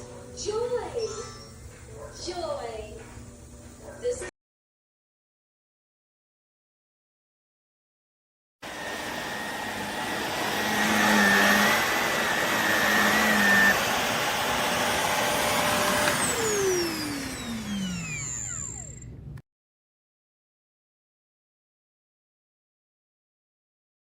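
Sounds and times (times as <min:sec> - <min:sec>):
upright vacuum running: 0:08.6 - 0:19.4.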